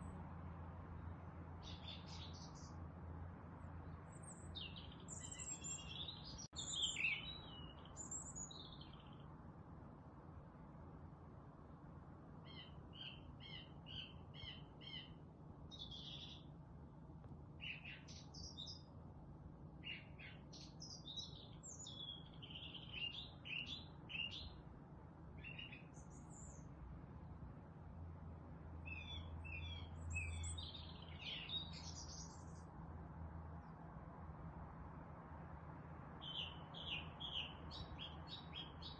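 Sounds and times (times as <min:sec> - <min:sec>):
forest birds chirping and singing: 0:01.0 - 0:02.8, 0:03.5 - 0:09.4, 0:12.3 - 0:16.6, 0:17.5 - 0:19.0, 0:19.8 - 0:26.8, 0:28.8 - 0:32.7, 0:36.2 - 0:38.9.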